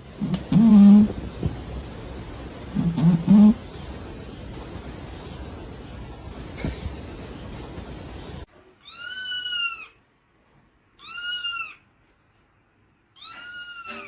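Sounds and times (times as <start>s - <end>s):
steady background noise: 0.0s - 8.6s
cat meowing: 8.8s - 10.0s, 11.0s - 11.8s, 13.2s - 14.0s.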